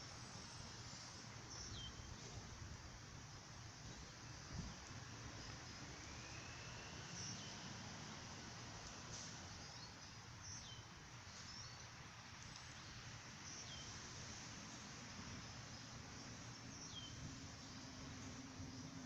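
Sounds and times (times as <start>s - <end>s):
steady outdoor hiss: 0.0s - 19.0s
faint high bird chirps: 4.7s - 7.7s.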